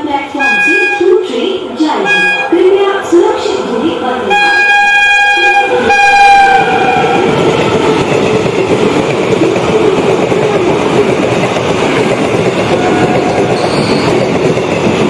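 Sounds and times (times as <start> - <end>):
locomotive horn blasts: 0.4 - 1.1, 2.0 - 2.6, 4.3 - 7.2
wheels rattling on rails: 5.8 - 15.0.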